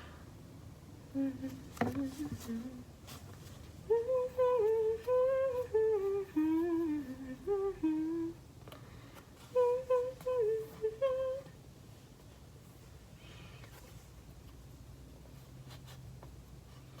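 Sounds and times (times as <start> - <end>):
girl humming a tune: 3.9 - 8.4.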